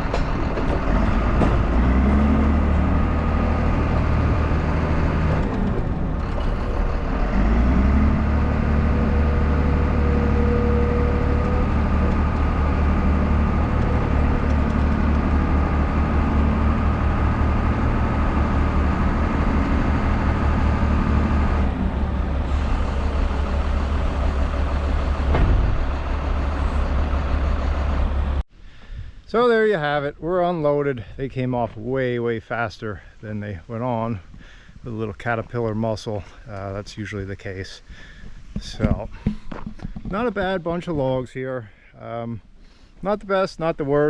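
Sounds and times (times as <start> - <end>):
loader diesel engine running: 0.0 - 28.4.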